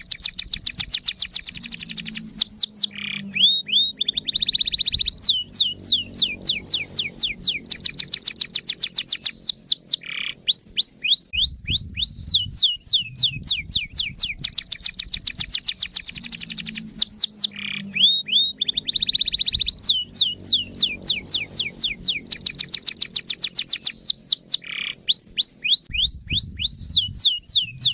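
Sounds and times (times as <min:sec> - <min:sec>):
songbird singing whistled notes: 0:00.0 - 0:27.9.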